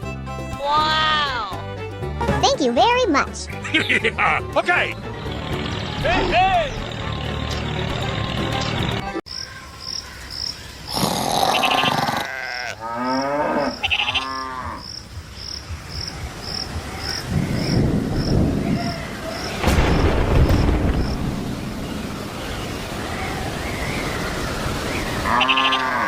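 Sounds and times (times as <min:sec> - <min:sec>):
crickets chirping: 0:09.3 - 0:11.8, 0:13.0 - 0:25.2
cow lowing: 0:10.9 - 0:14.8.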